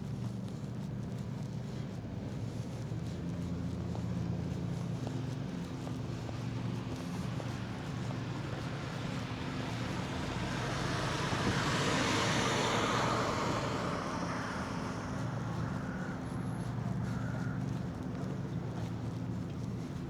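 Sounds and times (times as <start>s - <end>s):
low engine hum: 0.0s - 20.0s
vehicle passing by: 8.4s - 17.5s.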